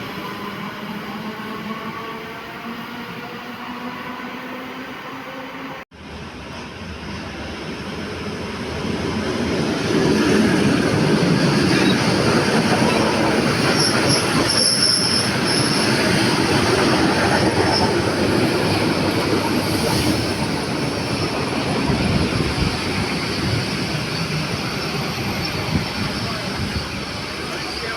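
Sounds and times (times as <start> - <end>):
train running on rails: 0.0 - 27.9
high wheel squeal: 11.4 - 18.2, 22.1 - 27.9.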